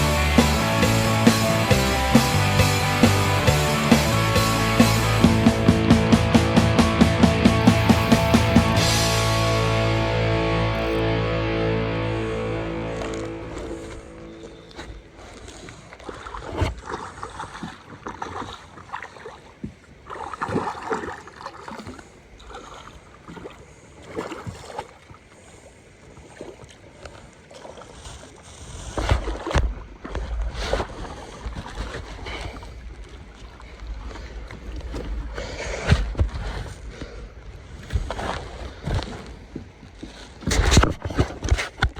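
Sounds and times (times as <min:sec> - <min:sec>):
water splashing and lapping: 0:00.0 - 0:09.6, 0:12.1 - 0:41.9
low rumble: 0:02.4 - 0:15.5.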